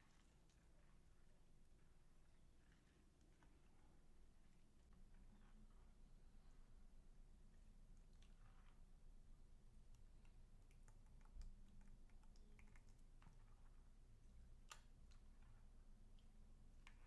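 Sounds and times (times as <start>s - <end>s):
faint small clicks: 9.9s - 13.8s, 14.6s - 17.0s.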